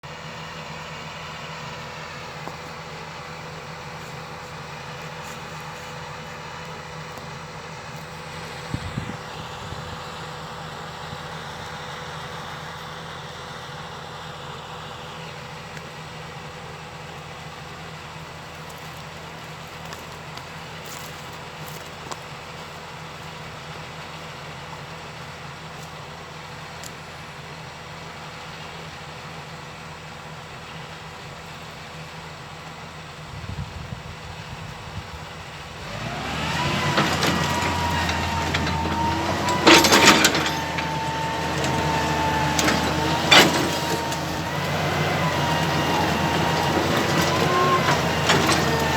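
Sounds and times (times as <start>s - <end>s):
excavator diesel engine running: 0.0s - 33.4s, 34.1s - 48.9s.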